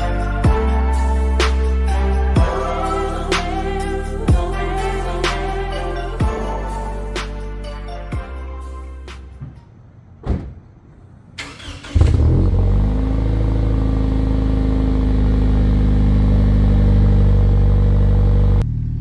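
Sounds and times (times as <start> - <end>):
thump: 9.4 - 11.0
car engine revving and idling: 10.9 - 19.0.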